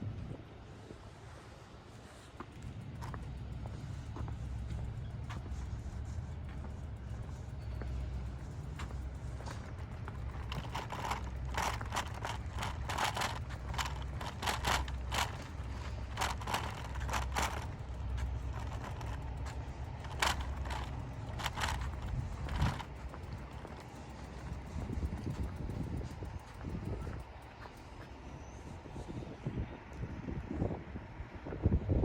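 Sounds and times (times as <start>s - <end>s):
low diesel engine rumble: 0.2s - 31.3s
train wheels clacking over rail joints: 8.8s - 27.8s.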